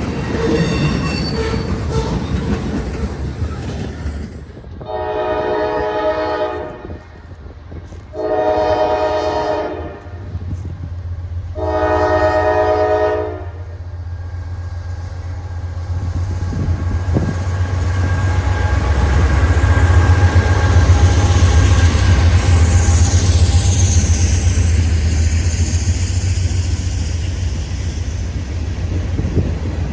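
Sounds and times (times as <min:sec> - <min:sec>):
low rumble of train: 0:00.0 - 0:29.9
locomotive horn blasts: 0:04.8 - 0:07.0, 0:08.2 - 0:10.2, 0:11.6 - 0:13.6.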